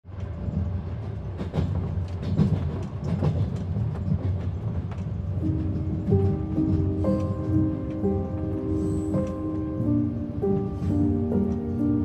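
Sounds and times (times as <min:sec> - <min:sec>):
train carriage low rumble: 0:00.0 - 0:12.0
wheels clicking and knocking on track: 0:00.1 - 0:08.5
music: 0:05.3 - 0:12.0.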